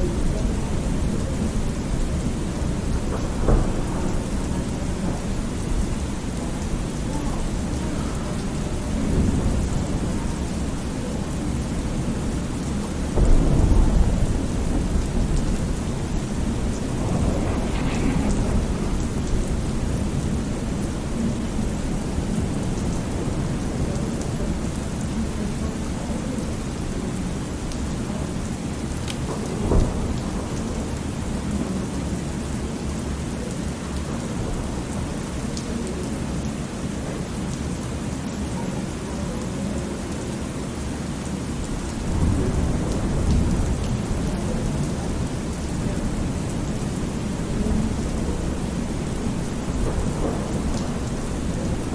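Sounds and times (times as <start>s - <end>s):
low rolling thunder: 0.0s - 31.4s, 41.5s - 51.9s
rain falling: 0.0s - 51.9s.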